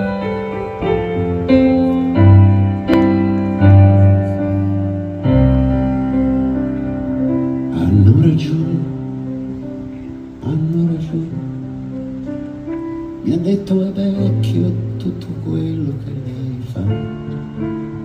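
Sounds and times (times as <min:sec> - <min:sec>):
piano playing slow chords: 0:00.0 - 0:18.0.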